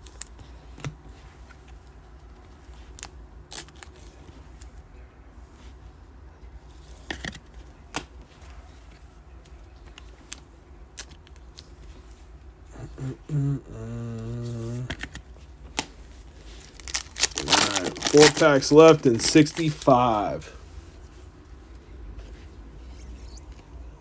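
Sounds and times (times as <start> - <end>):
cards being handled: 6.8 - 12.2, 14.5 - 20.5
man humming: 12.7 - 15.0, 17.4 - 20.5.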